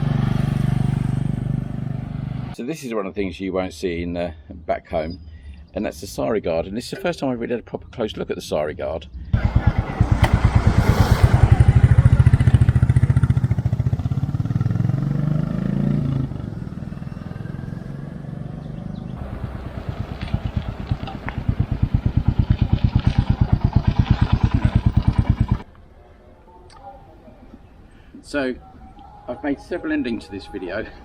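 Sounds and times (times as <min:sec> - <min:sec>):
single-cylinder motorcycle engine: 0:00.0 - 0:02.6, 0:09.4 - 0:25.6.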